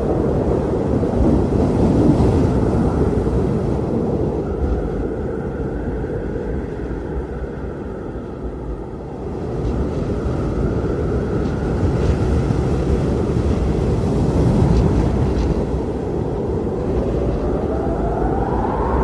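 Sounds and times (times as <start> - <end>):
strong winds buffeting microphone: 0.0 - 19.0
faint rising tone: 17.0 - 19.0.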